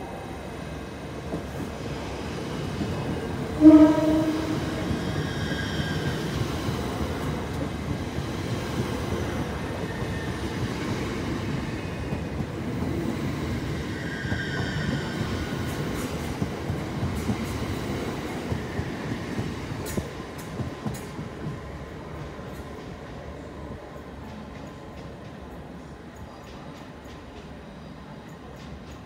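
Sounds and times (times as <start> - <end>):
train rumble and wheel noise: 0.0 - 29.0
train horn blast: 3.5 - 4.9.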